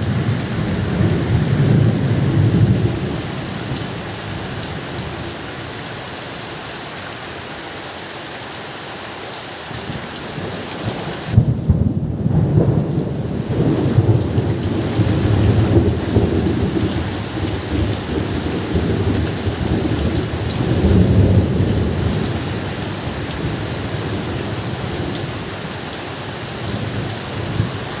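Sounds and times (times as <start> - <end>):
thunder rumbling: 0.0 - 5.4, 9.9 - 25.5
steady rain: 0.0 - 28.0.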